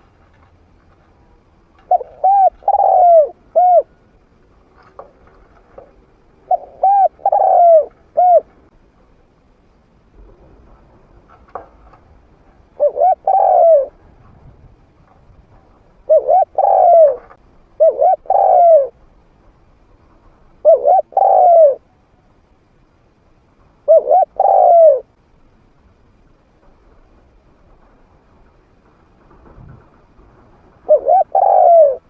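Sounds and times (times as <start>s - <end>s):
dove cooing: 1.8s - 4.0s, 5.7s - 8.6s, 12.8s - 14.1s, 16.0s - 19.0s, 20.6s - 21.9s, 23.8s - 25.2s, 30.8s - 32.0s.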